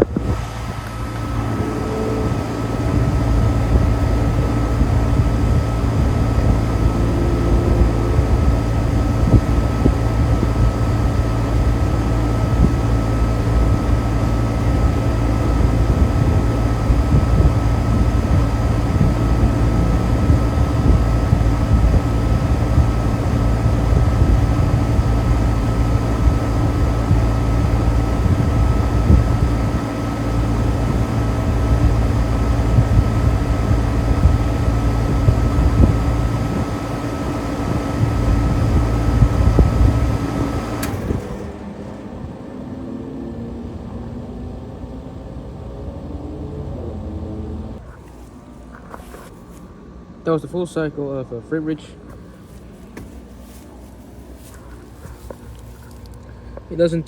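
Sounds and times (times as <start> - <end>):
air conditioner unit humming: 0.0 - 57.0
constant whine: 0.0 - 57.0.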